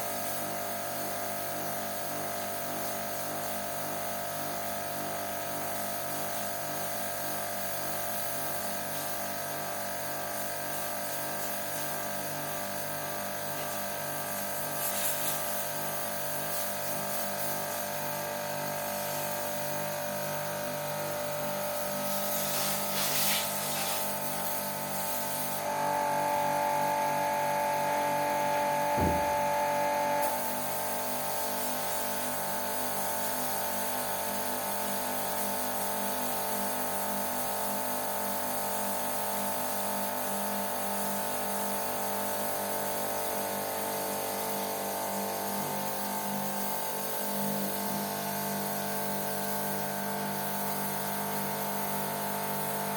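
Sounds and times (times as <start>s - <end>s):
pressure-washer pump running: 0.0s - 52.9s
water spraying: 7.8s - 26.6s
short thump: 29.0s - 29.5s.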